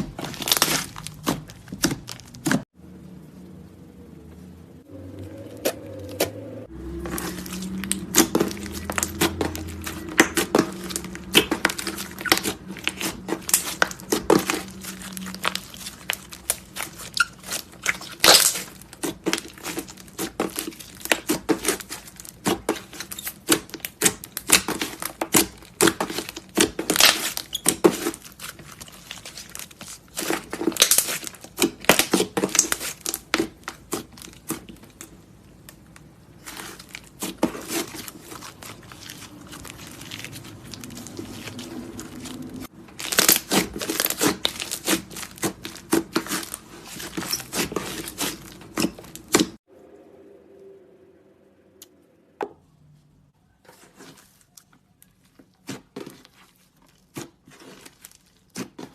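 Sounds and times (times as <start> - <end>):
slime crackling and popping: 0.0 - 2.6, 6.8 - 49.6
low steady hum: 49.6 - 53.3.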